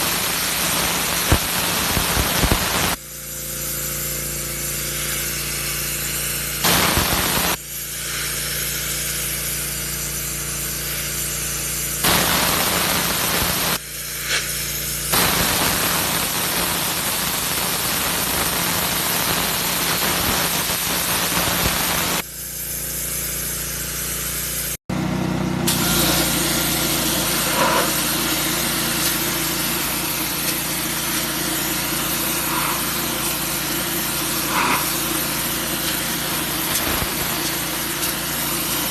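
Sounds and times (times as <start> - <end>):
pressure washer motor humming: 0.0 - 38.9
pressure washer spray jet: 0.0 - 38.9.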